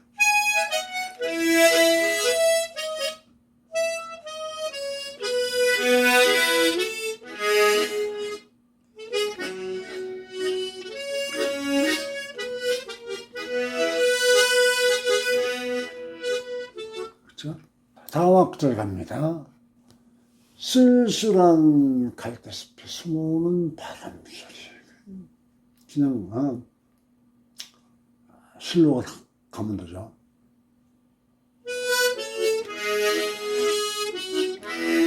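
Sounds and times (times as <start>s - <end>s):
harmonica playing slow melody: 0.0s - 17.2s, 31.6s - 35.0s.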